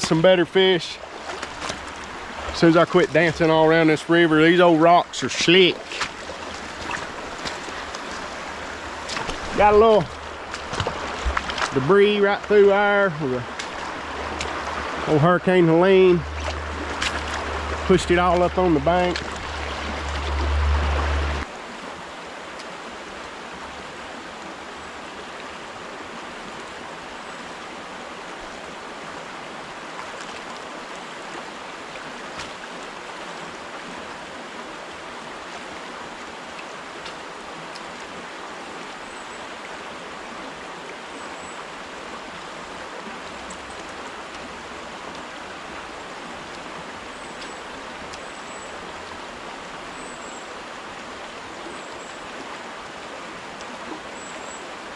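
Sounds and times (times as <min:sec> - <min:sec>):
river water rushing over rocks: 0:00.0 - 0:54.9.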